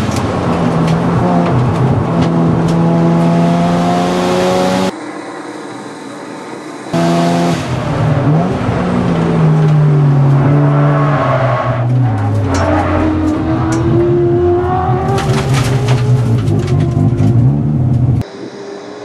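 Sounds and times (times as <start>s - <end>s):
rotary engine revving: 7.0s - 18.7s.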